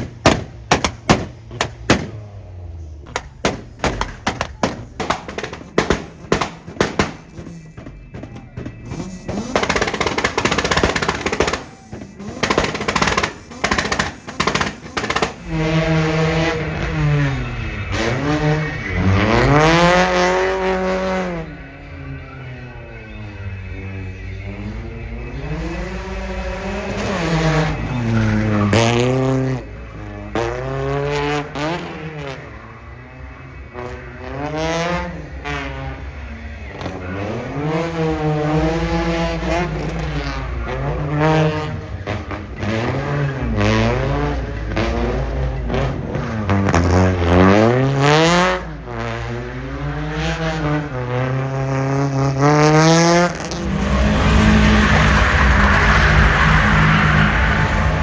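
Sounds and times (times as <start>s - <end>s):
sports car engine revving: 0.0s - 58.0s
tyre squeal: 53.4s - 58.0s.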